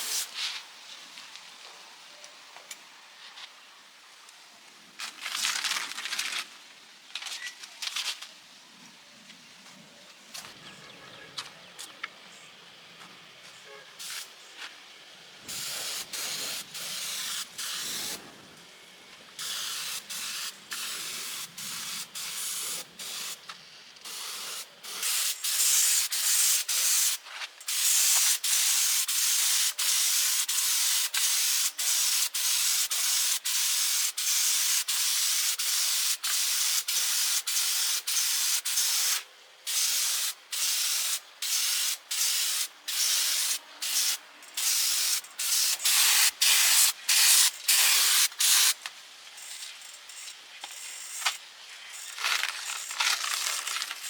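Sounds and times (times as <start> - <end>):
spray gun hissing: 0.0 - 0.4, 14.0 - 14.4, 15.4 - 18.4, 19.4 - 23.4, 24.0 - 48.8.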